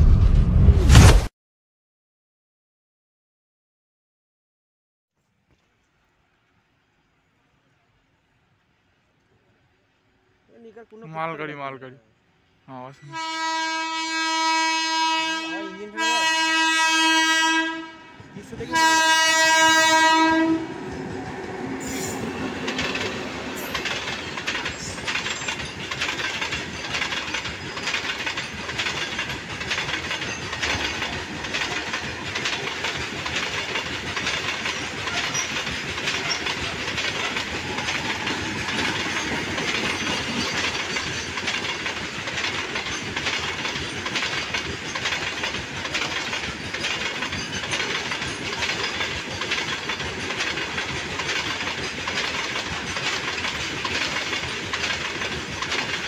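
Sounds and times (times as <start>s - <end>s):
locomotive horn blasts: 13.0s - 20.8s
train wheels clattering over rail joints: 20.7s - 56.0s.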